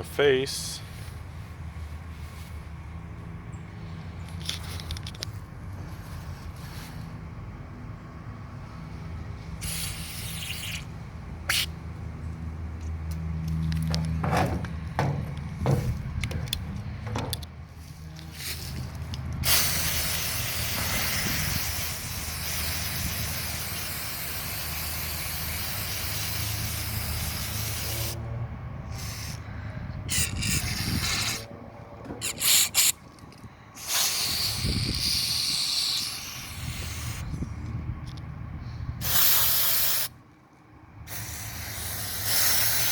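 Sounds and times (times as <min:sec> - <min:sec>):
aerosol spray hissing: 0:09.6 - 0:10.9, 0:19.5 - 0:28.2, 0:28.9 - 0:29.4, 0:30.1 - 0:31.4, 0:33.8 - 0:37.3, 0:39.0 - 0:40.1, 0:41.1 - 0:42.9.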